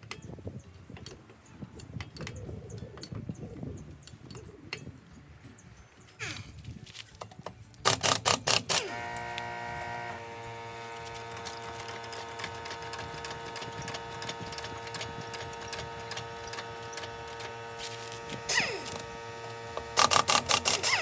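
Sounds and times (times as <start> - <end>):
air impact wrench hammering: 7.9 - 21.0
mechanical hum with rapid ticking: 7.9 - 21.0.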